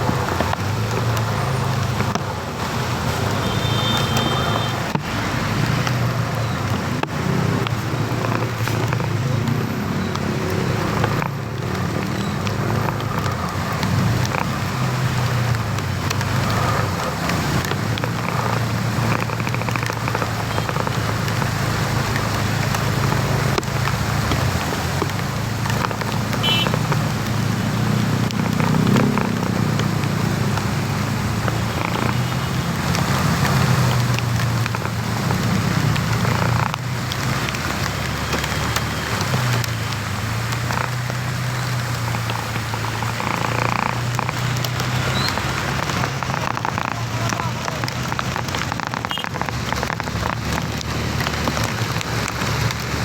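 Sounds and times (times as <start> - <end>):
rain falling: 0.0 - 53.0
vehicle engine humming: 0.0 - 53.0.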